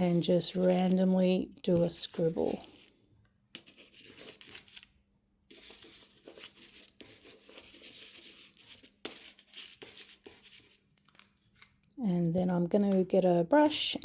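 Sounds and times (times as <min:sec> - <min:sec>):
pencil scribbling on tape: 0:00.0 - 0:01.0, 0:03.5 - 0:04.8, 0:05.5 - 0:10.8.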